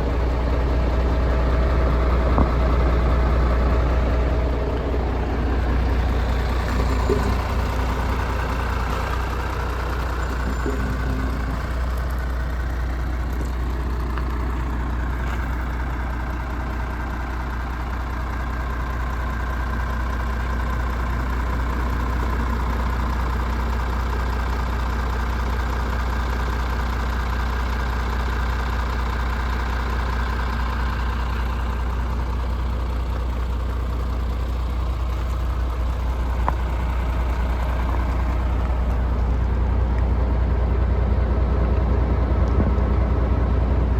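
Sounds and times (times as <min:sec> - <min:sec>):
diesel engine idling: 0:00.0 - 0:43.9.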